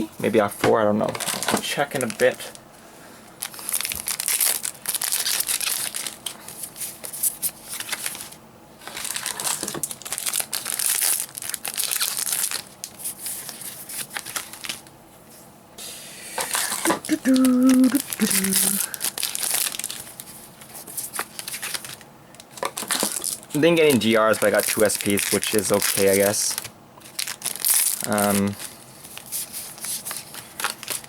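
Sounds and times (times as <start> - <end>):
foil wrappers crinkling and tearing: 1.0 - 2.7, 3.4 - 14.9, 16.5 - 31.0.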